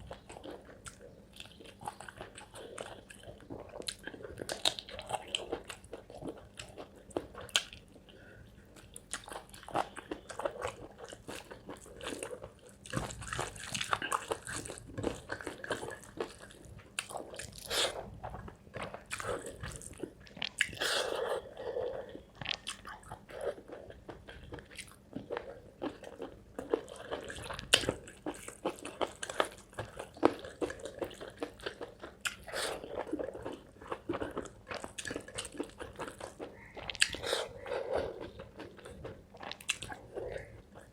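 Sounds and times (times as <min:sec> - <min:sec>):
person chewing food: 0:00.0 - 0:40.9
wet mouth sounds: 0:34.3 - 0:40.9.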